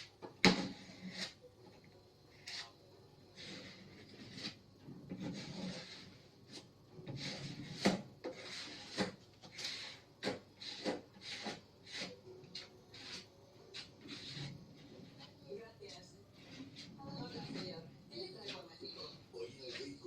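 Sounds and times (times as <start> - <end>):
putty knife scraping: 0.0 - 1.4, 2.3 - 15.3, 16.4 - 17.8.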